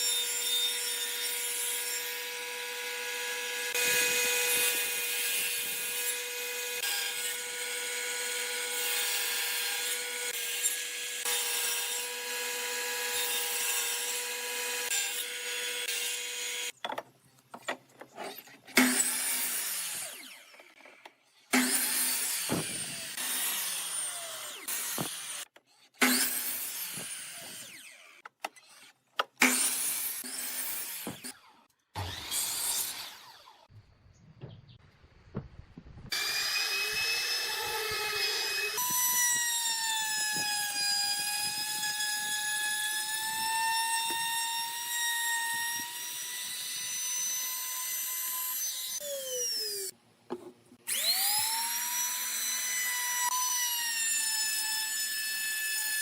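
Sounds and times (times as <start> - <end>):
power tool motor whine: 36.1 - 41.9, 50.9 - 53.5.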